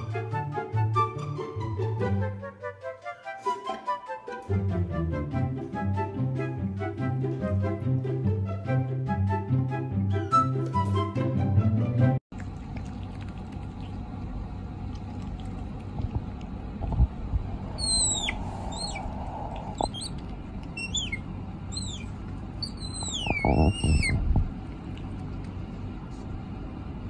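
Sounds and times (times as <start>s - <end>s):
soft low thumps: 15.9s - 20.0s
small animal high-pitched squeaks: 17.7s - 24.4s.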